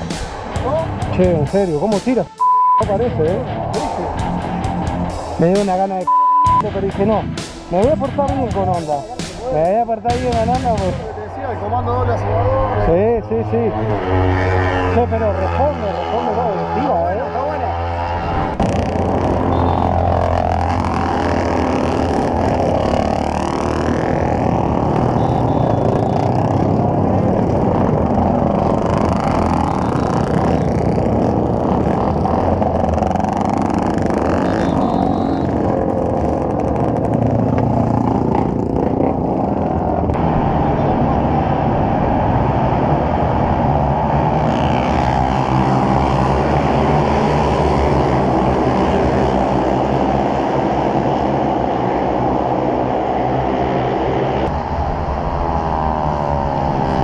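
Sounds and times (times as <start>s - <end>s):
motorcycle engine running: 0.0s - 11.5s, 17.2s - 40.2s.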